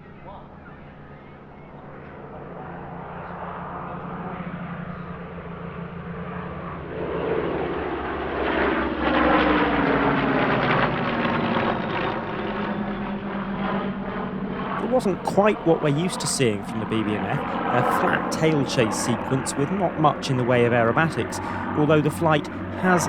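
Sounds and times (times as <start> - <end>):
piston aircraft engines passing low: 0.0 - 23.0.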